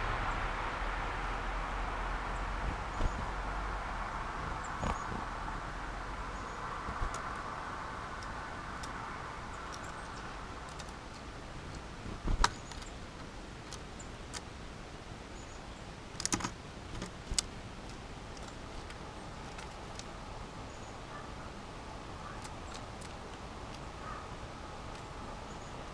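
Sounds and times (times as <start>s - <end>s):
car passing: 0.0s - 9.6s
birds pecking at feeder: 4.3s - 5.4s, 6.3s - 14.6s, 15.4s - 25.9s.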